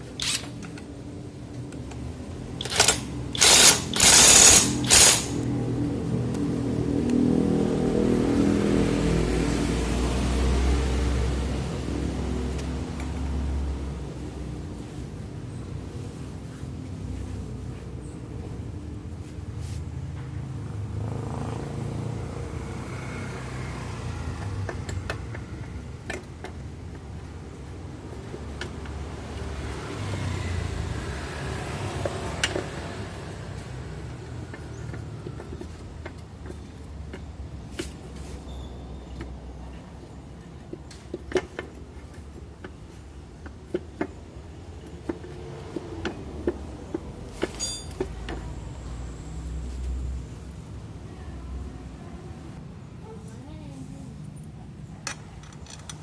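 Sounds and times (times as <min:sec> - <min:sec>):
sharp clicks: 0:00.1 - 0:00.8, 0:02.6 - 0:05.4
scooter engine running: 0:02.6 - 0:05.8.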